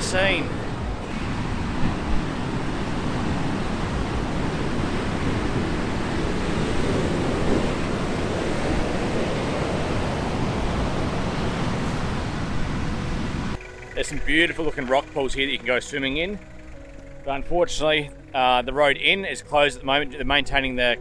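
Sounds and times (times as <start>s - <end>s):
wind buffeting microphone: 0.0s - 15.3s
ocean waves breaking: 0.0s - 19.2s.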